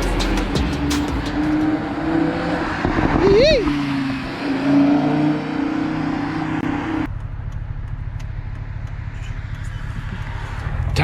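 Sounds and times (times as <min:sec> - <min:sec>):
car engine humming: 0:00.0 - 0:11.0
low engine rumble: 0:07.0 - 0:11.0.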